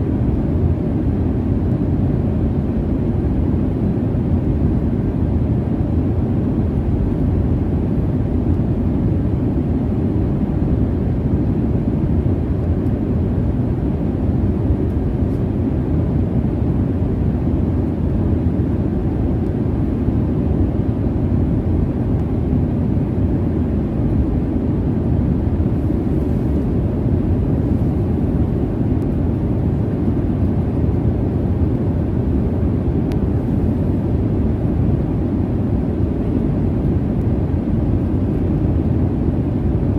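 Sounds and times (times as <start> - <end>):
airliner cabin jet rush: 8.8 - 39.9.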